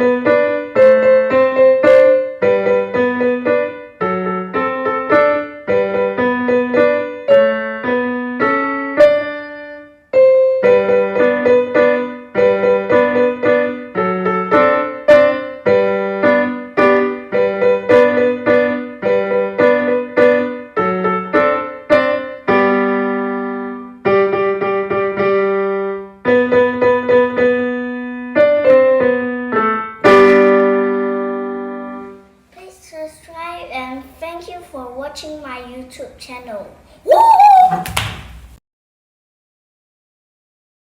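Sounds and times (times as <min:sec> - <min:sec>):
solo piano melody: 0:00.0 - 0:32.4.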